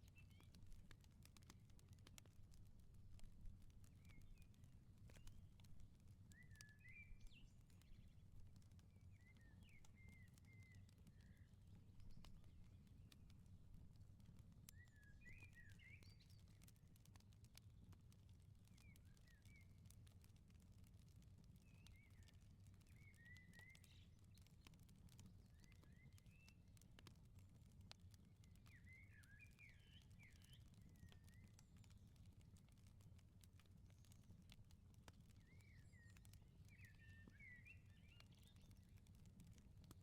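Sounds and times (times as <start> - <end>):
fire popping: 0.0 - 40.0
wood fire crackling: 0.0 - 40.0.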